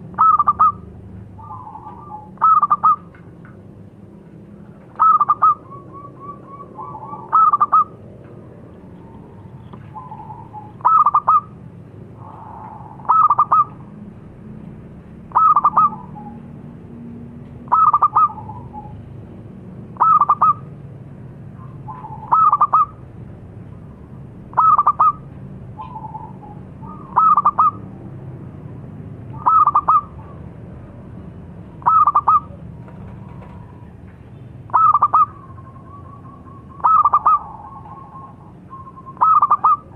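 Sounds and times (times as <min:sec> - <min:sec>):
dove cooing: 0:00.1 - 0:03.3, 0:04.9 - 0:08.1, 0:08.8 - 0:13.9, 0:15.3 - 0:16.5, 0:17.7 - 0:19.0, 0:20.0 - 0:20.7, 0:21.6 - 0:23.0, 0:24.5 - 0:27.9, 0:29.3 - 0:30.5, 0:31.8 - 0:34.0, 0:34.7 - 0:39.9.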